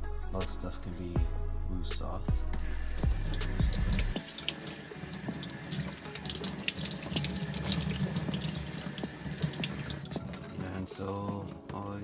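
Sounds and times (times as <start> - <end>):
tap water running and splashing: 2.7 - 11.6.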